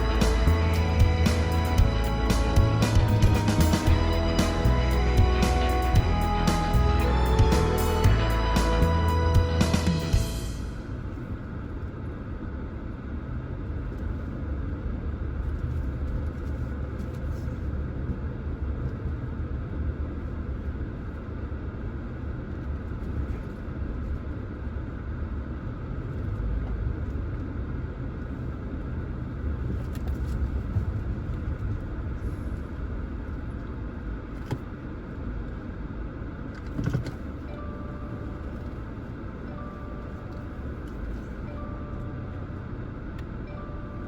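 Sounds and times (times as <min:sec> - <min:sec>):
car road and engine rumble: 0:00.0 - 0:44.0
faint steady tone: 0:37.2 - 0:44.0.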